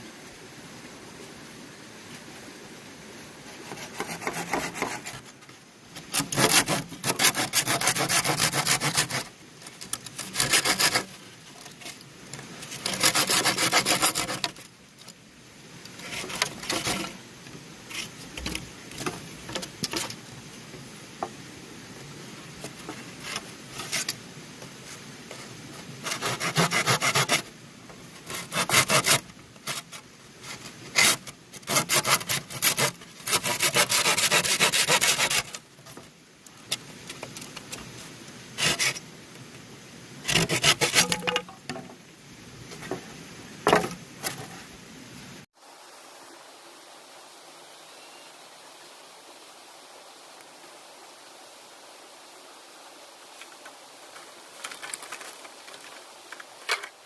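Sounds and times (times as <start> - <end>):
hand saw cutting bamboo: 3.6 - 5.3, 6.0 - 11.2, 12.6 - 14.6, 16.0 - 17.2, 26.0 - 27.5, 28.3 - 30.0, 30.9 - 35.6, 38.6 - 39.0, 40.2 - 41.8.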